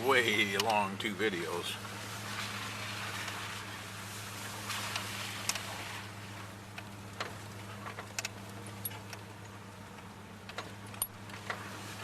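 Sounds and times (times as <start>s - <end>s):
low engine hum: 0.0s - 12.0s
light clicks and rattles: 6.7s - 11.7s.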